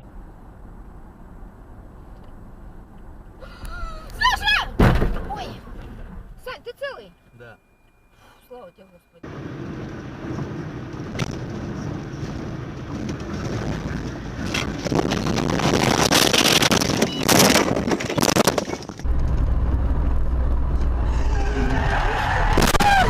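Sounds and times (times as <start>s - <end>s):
vehicle road and wind noise: 0.0s - 23.0s
loud rushing and crackling: 9.2s - 23.0s
low engine drone: 19.0s - 23.0s.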